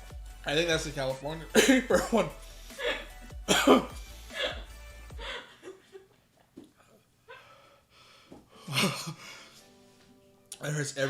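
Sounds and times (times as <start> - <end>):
background music: 0.0 - 6.4, 7.1 - 11.0
person gasping and whimpering: 2.5 - 3.3, 3.9 - 5.6, 7.2 - 9.6.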